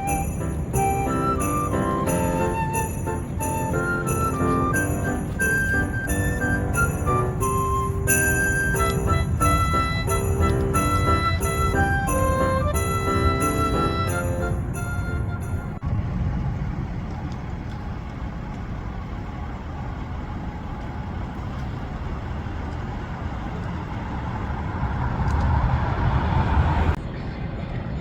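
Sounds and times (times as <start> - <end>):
traffic rumble: 0.0 - 28.0
vehicle passing close: 21.0 - 28.0.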